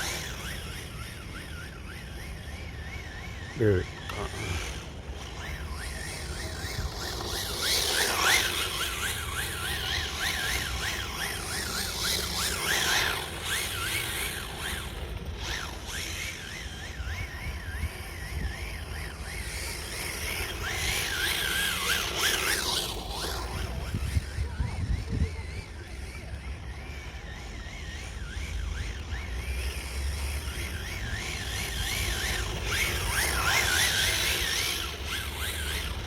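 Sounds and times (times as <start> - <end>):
toy car motor whining: 0.0 - 36.0
wind on microphone: 23.2 - 25.7.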